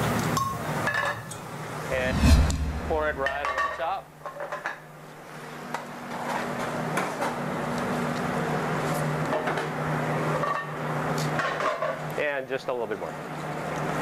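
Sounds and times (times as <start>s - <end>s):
low hum: 1.9s - 3.8s.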